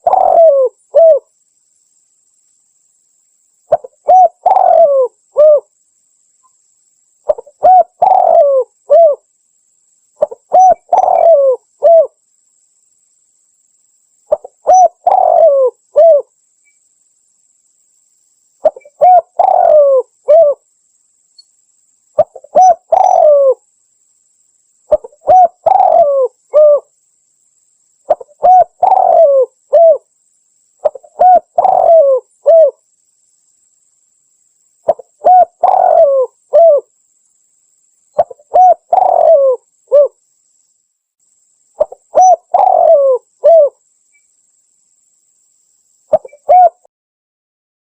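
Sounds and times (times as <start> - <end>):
dove cooing: 0.0 - 1.3, 3.7 - 5.7, 7.3 - 9.2, 10.2 - 12.1, 14.3 - 16.3, 18.6 - 20.6, 22.2 - 23.6, 24.9 - 26.9, 28.1 - 30.1, 30.8 - 32.8, 34.9 - 36.9, 38.2 - 40.2, 41.8 - 43.8, 46.1 - 46.9.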